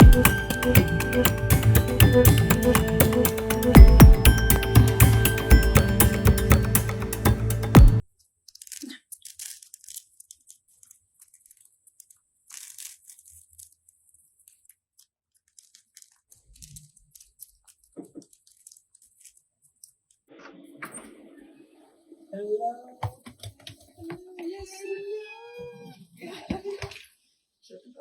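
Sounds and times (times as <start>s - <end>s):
faint crunching and crackling: 8.2s - 21.9s.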